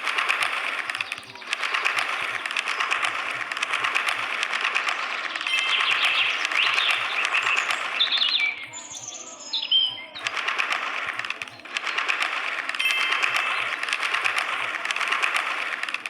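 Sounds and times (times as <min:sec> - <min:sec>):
weaver birds chattering: 0:00.0 - 0:12.5, 0:13.1 - 0:14.8
clear bird chirps: 0:00.9 - 0:10.7.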